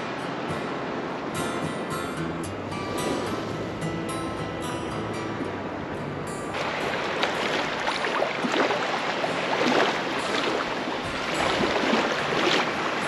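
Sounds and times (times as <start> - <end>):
surf washing onto sand: 6.6 - 13.0
water splashing and fizzing: 6.6 - 13.0.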